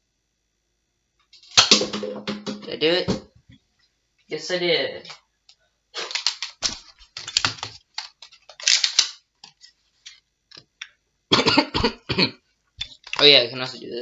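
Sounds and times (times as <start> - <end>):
plastic toy blaster clicking: 6.0 - 9.2.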